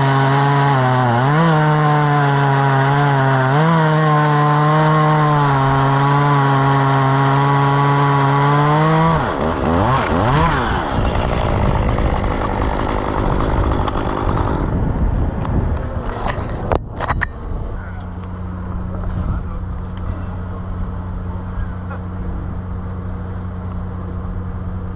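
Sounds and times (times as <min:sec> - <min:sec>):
chainsaw revving: 0:00.0 - 0:14.8.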